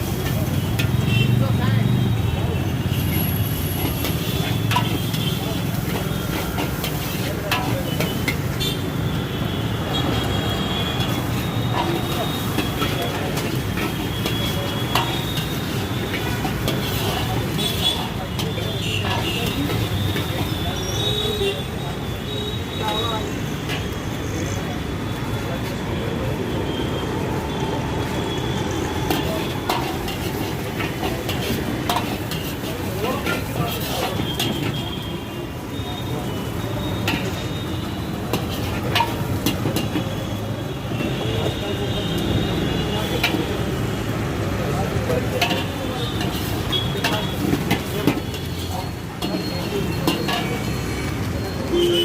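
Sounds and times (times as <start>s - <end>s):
rice sizzling in a wok: 0.0s - 25.8s, 26.4s - 52.0s
street traffic rumble: 0.0s - 52.0s
metal spatula scraping pan: 3.5s - 8.5s, 11.0s - 20.4s, 29.1s - 34.8s, 45.4s - 50.9s.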